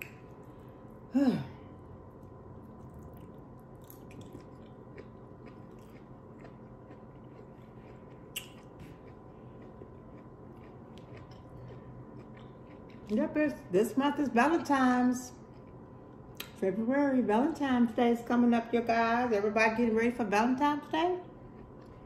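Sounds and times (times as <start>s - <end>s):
person chewing food: 1.9s - 13.2s, 15.4s - 16.6s, 21.4s - 22.0s.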